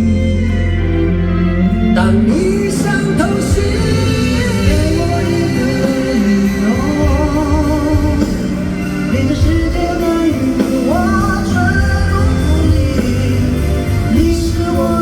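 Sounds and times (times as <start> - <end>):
pop-rock band playing: 0.0 - 15.0.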